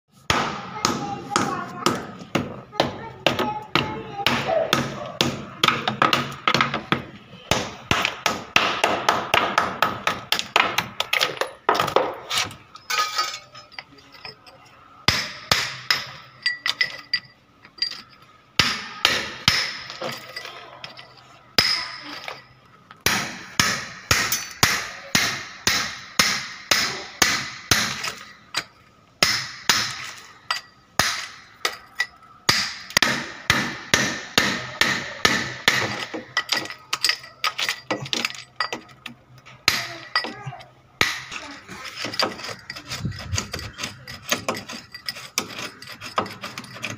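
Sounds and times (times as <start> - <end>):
hammer striking hard surface: 23.0 - 28.3, 32.5 - 36.7.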